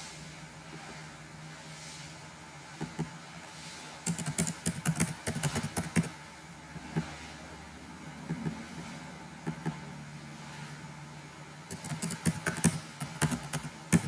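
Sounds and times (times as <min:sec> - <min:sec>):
steady low hum: 0:00.0 - 0:14.0
typing on computer keyboard: 0:04.1 - 0:06.1, 0:11.7 - 0:14.0.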